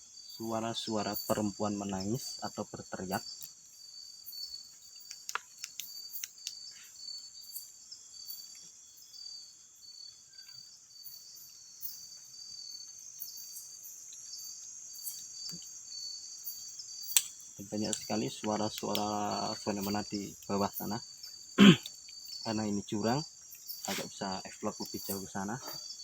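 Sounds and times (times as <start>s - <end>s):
insect chirp repeating: 0.0s - 26.0s
insects high-pitched drone: 0.0s - 26.0s
faint clicks: 4.8s - 6.7s, 17.1s - 20.5s.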